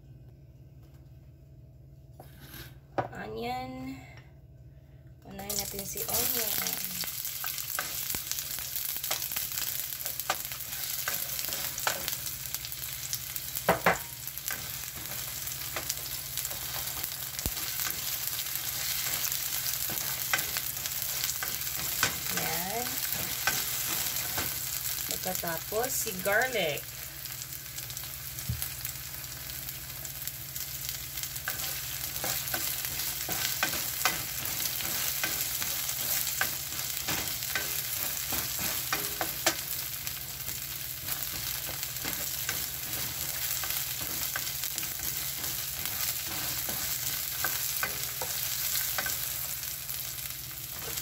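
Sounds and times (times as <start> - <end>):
onion sizzling in hot oil: 5.4 - 51.0
spatula clicking and scraping: 14.5 - 24.7, 31.4 - 49.4.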